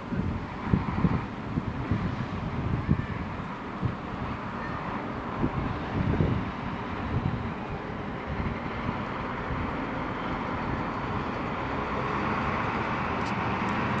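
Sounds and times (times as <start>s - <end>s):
airplane in flight: 0.0s - 14.0s.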